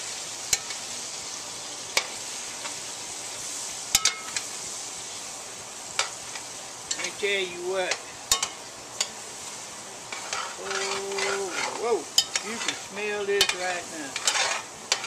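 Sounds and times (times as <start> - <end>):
chicken and onions sizzling: 0.0 - 15.0
metal spoon clinking on pot: 12.2 - 12.5.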